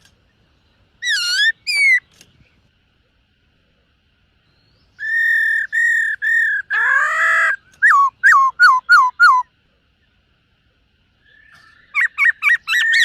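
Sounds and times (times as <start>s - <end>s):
bird singing whistled notes: 0.6s - 2.4s, 4.4s - 9.5s, 11.2s - 13.0s.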